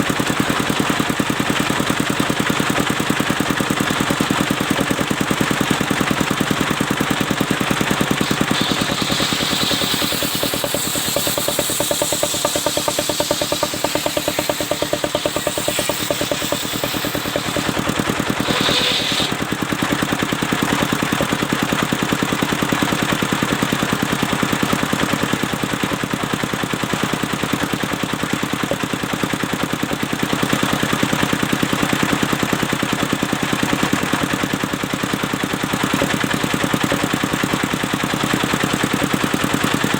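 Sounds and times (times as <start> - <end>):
sawmill engine running: 0.0 - 39.9
brief high-pitched hissing: 8.2 - 19.4.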